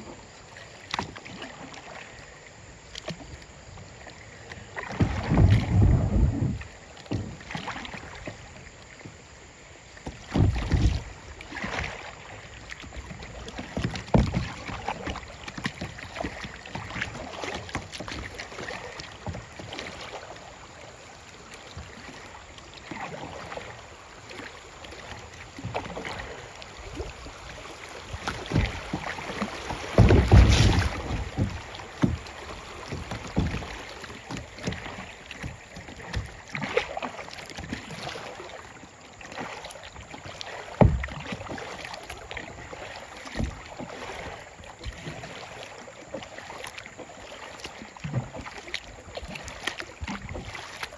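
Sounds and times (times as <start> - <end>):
paddle strokes splashing water: 0.0 - 50.9
low rumbling bumps: 26.7 - 33.8.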